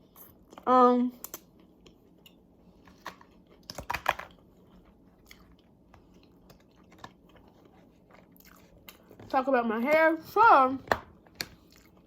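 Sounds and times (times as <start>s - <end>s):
person chewing: 1.2s - 9.3s, 11.2s - 12.0s.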